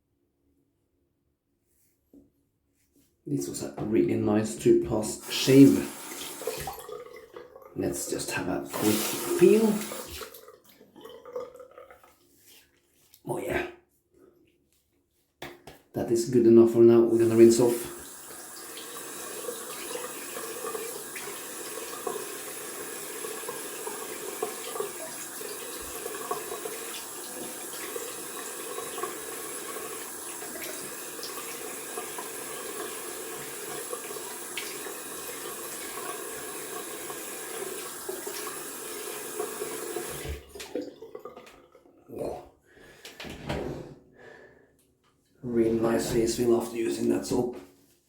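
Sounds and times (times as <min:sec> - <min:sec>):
water splashing: 0:05.2 - 0:12.6
tap running into sink: 0:18.0 - 0:41.6.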